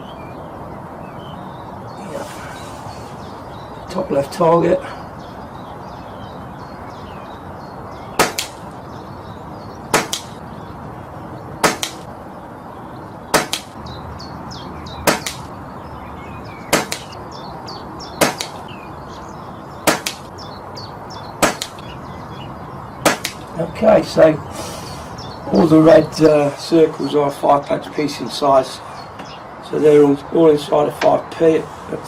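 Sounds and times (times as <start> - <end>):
birds chirping: 0.0 - 32.0
pellet striking target: 8.2 - 8.6, 9.9 - 10.4, 11.6 - 12.0, 13.3 - 13.8, 15.0 - 15.5, 16.7 - 17.1, 18.2 - 18.6, 19.8 - 20.3, 21.4 - 21.8, 23.0 - 23.4
air rifle shots: 8.2 - 8.7, 9.9 - 10.4, 11.6 - 12.1, 13.3 - 13.8, 15.0 - 15.5, 16.7 - 17.2, 18.2 - 18.6, 19.8 - 20.3, 21.4 - 21.8, 23.0 - 23.5.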